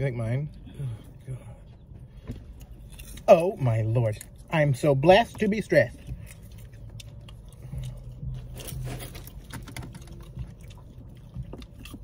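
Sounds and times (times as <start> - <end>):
low steady hum: 0.0 - 12.0
popcorn chewing and crunching: 2.5 - 12.0.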